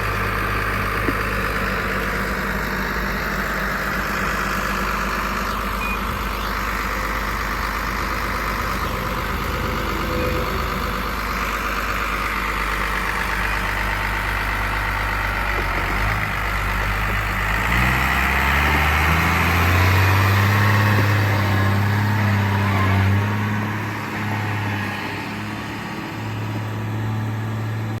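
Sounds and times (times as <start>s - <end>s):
tractor diesel engine: 0.0s - 28.0s.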